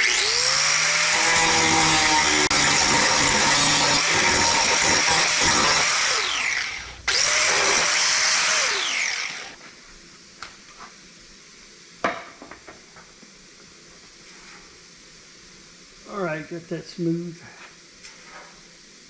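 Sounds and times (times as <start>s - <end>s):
hand grinder on sheet steel: 0.0s - 9.6s.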